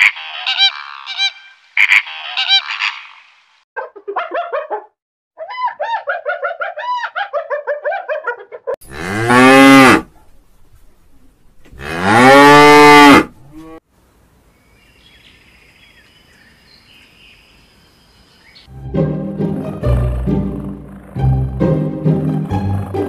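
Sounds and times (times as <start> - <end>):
cow mooing: 8.8 - 10.1, 11.8 - 13.8.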